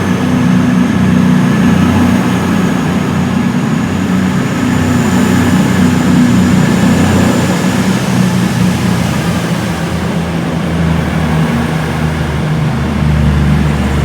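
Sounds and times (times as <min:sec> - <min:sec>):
train engine droning: 0:00.0 - 0:14.0.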